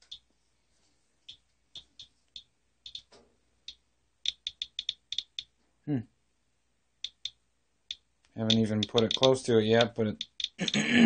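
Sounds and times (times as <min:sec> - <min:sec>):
geiger counter clicking: 0:00.0 - 0:00.3, 0:01.3 - 0:05.5, 0:07.0 - 0:10.8.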